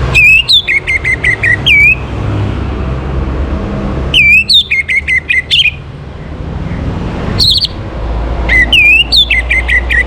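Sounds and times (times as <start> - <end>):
thrush singing whistled notes: 0.0 - 2.2, 4.1 - 5.8, 7.4 - 7.8, 8.5 - 10.0.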